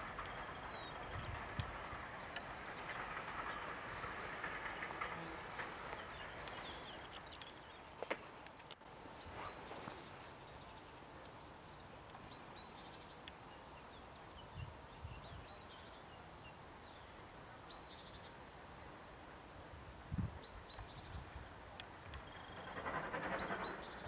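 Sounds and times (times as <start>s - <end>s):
faint outdoor hiss: 0.0s - 22.7s
wind bumps on microphone: 19.9s - 21.5s.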